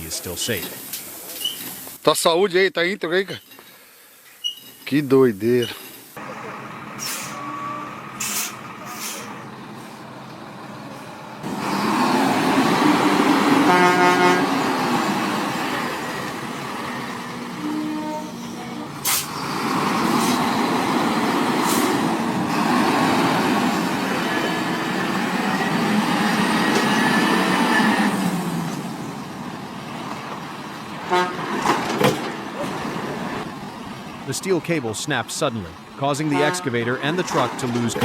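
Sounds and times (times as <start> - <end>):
diesel truck and machinery engines: 3.4 - 38.0
horn toot: 7.0 - 9.3, 12.6 - 15.2, 17.0 - 19.3, 31.0 - 31.7, 36.2 - 37.7.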